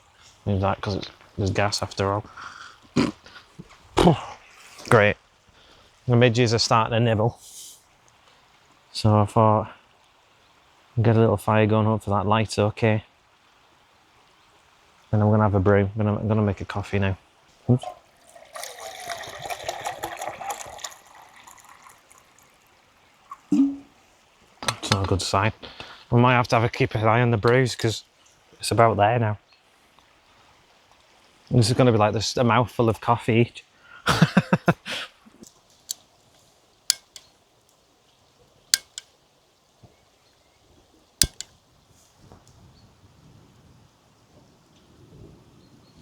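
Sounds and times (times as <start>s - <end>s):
water pouring into pot: 17.7s - 23.9s, 36.8s - 37.3s, 38.7s - 39.2s, 41.2s - 41.5s
sharp clicks and light clinks: 36.9s - 37.3s, 38.8s - 39.1s, 41.2s - 41.6s.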